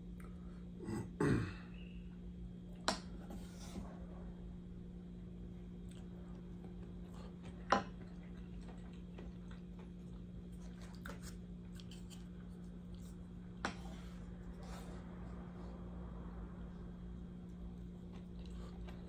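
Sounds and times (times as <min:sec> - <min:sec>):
steady low hum: 0:00.0 - 0:19.0
quiet chewing: 0:05.1 - 0:15.6, 0:17.1 - 0:19.0.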